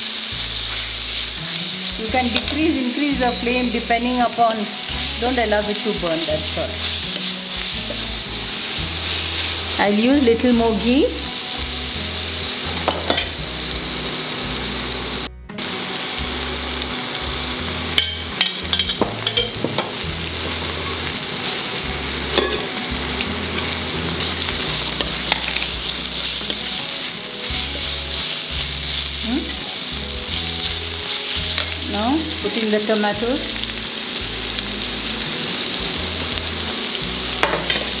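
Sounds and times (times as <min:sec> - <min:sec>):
onions sizzling in fat: 0:00.0 - 0:38.0
spoon scraping and knocking pan: 0:06.1 - 0:08.2, 0:12.7 - 0:13.4, 0:18.0 - 0:21.0, 0:22.3 - 0:22.8, 0:23.5 - 0:26.8, 0:37.3 - 0:38.0.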